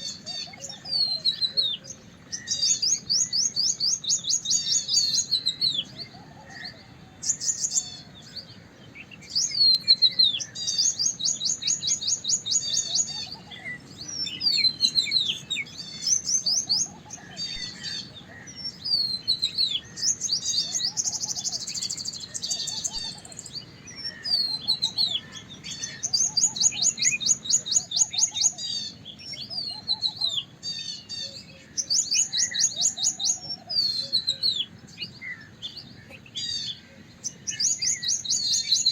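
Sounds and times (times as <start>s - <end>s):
fast bird trills: 9.4s - 34.6s.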